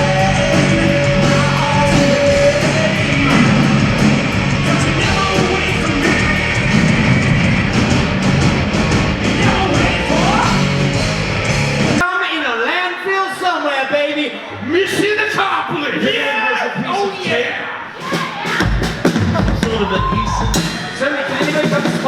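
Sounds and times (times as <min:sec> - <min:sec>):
person singing: 0:00.0 - 0:07.2, 0:09.3 - 0:10.8
drums beating: 0:00.0 - 0:12.0, 0:18.0 - 0:22.0
guitar: 0:00.0 - 0:12.0.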